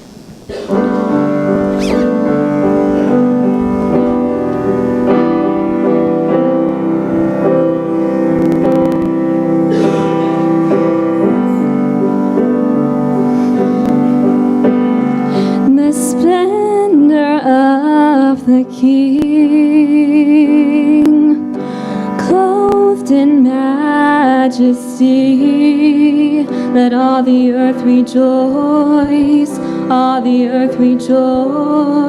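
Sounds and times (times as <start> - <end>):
keyboard playing held chords: 0.4 - 32.0.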